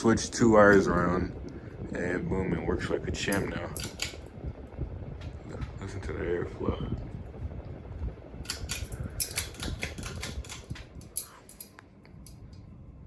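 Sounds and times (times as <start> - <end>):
ceiling fan airflow rumbling: 0.0 - 13.0
sharp clicks and rattles: 3.3 - 4.3, 8.4 - 12.6.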